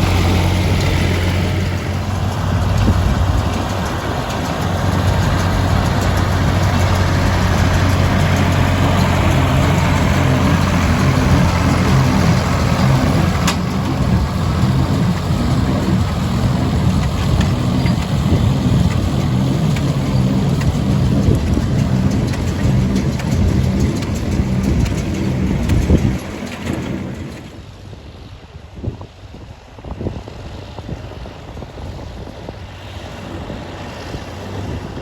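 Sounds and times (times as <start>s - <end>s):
tractor diesel engine running: 0.0s - 28.2s.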